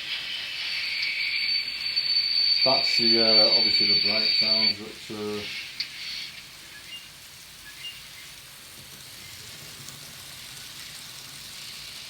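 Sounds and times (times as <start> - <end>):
steam hiss from small speaker: 0.0 - 12.0.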